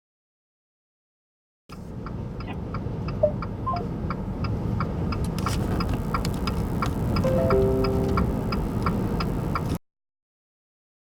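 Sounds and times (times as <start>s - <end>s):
steady low rumble: 1.9s - 9.8s
fast even ticking: 4.4s - 9.8s
short beeps: 7.2s - 8.7s.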